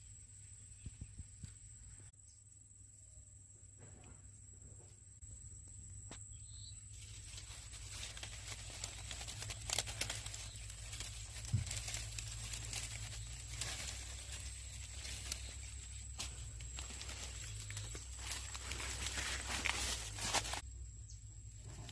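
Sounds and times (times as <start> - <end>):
rustling and crackling: 6.9 - 20.6.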